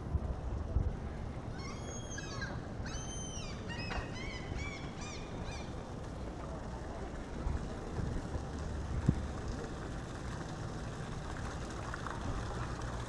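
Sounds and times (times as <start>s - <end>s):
wind rumble on microphone: 0.0s - 1.6s, 2.2s - 13.0s
bird calling: 1.5s - 5.8s.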